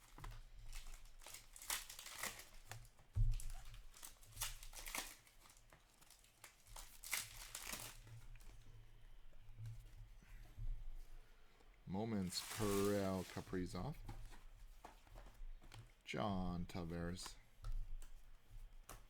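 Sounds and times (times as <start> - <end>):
card wrappers crinkling and tearing: 0.0 - 8.5, 12.2 - 13.9.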